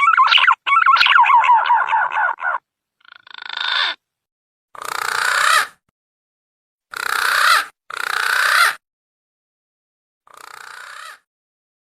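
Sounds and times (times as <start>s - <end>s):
rasping pulsed bird calls: 0.0s - 4.0s.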